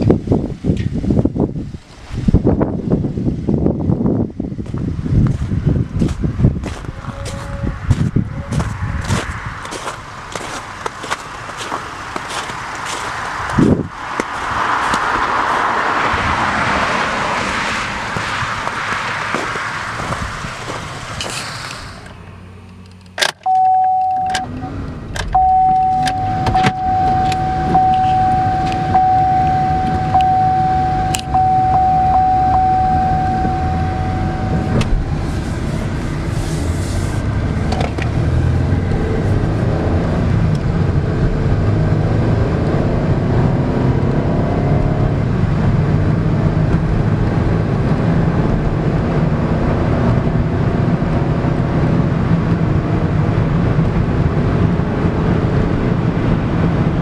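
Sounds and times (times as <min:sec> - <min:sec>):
car engine accelerating: 0:04.2 - 0:57.0
warning chime tone: 0:23.4 - 0:24.8, 0:25.4 - 0:35.2
clicks: 0:31.1 - 0:31.8.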